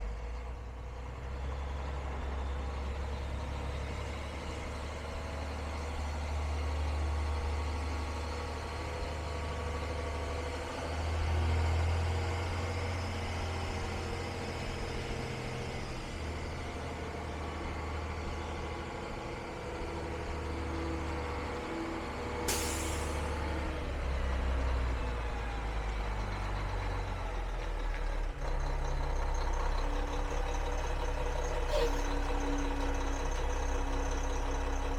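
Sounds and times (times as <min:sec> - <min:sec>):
diesel truck engine rumbling: 0:00.0 - 0:34.9
air brake hiss: 0:22.5 - 0:23.3, 0:31.5 - 0:32.2.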